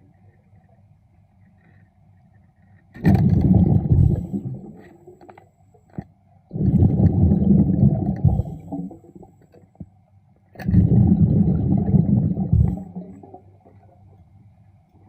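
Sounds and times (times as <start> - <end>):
underwater exhaust bubbles: 3.0 - 5.0, 6.5 - 9.5, 10.6 - 14.2.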